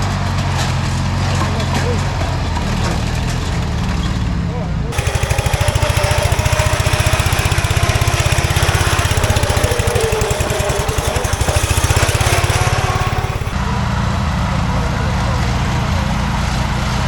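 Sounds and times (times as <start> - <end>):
riding lawn mower engine revving: 4.9 - 13.6.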